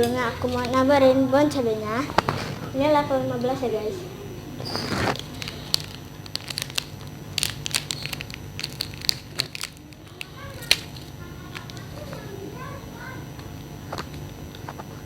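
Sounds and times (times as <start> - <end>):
plastic packaging crinkling: 4.7 - 12.3.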